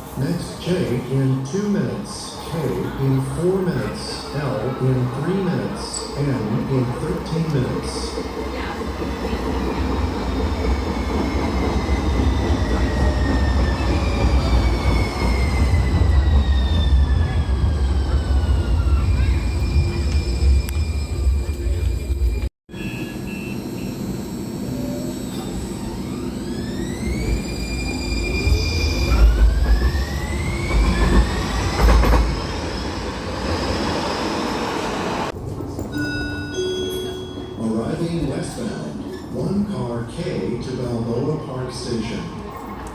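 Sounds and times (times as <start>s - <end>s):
train low rumble: 0.0s - 22.5s, 23.7s - 42.9s
traction motors whining: 23.1s - 35.3s.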